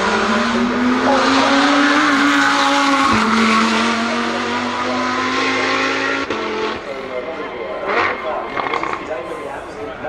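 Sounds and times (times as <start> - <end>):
racing car engine at high revs: 0.0 - 9.8.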